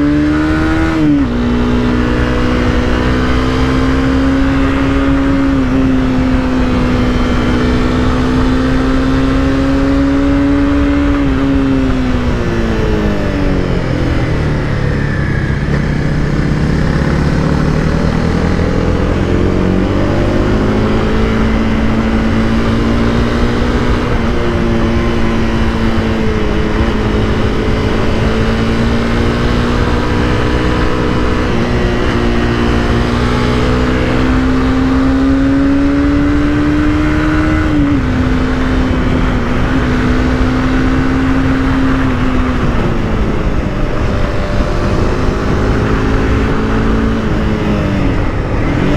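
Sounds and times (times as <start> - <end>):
motorcycle engine running: 0.0 - 48.9
steady rush of noise: 37.0 - 48.9.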